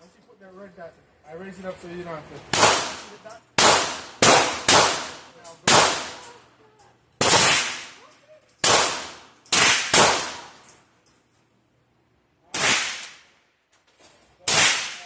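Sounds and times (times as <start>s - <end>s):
gunshots with echo: 2.5s - 6.2s, 8.6s - 10.5s.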